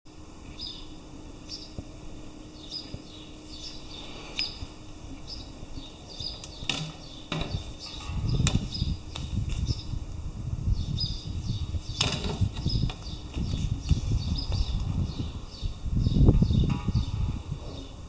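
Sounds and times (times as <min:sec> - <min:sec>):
small birds chirping: 0:00.4 - 0:18.0
low rumble: 0:00.9 - 0:18.0
sharp knocks: 0:06.4 - 0:09.3.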